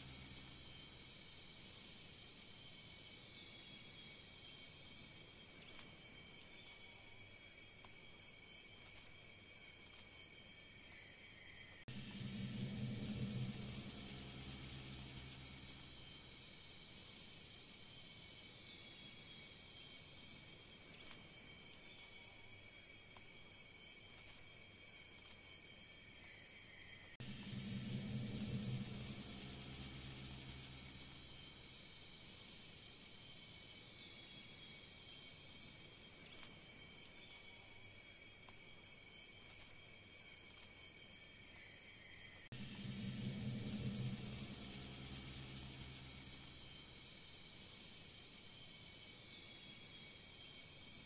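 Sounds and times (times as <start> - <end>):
crickets trilling: 0.0 - 51.0
loud low buzz: 11.9 - 16.0, 27.2 - 31.3, 42.5 - 46.7.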